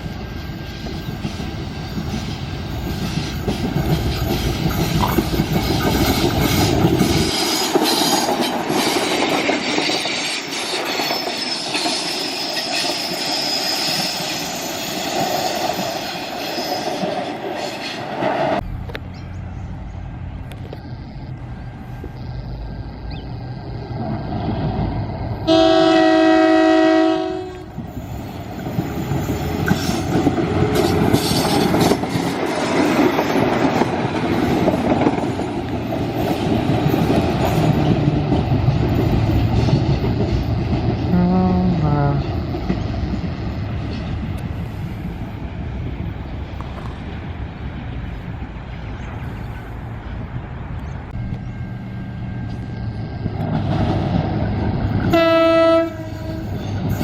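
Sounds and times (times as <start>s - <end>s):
train passing with rumble: 0.0s - 57.0s
train horn: 25.4s - 27.8s, 41.1s - 42.3s, 55.0s - 56.7s.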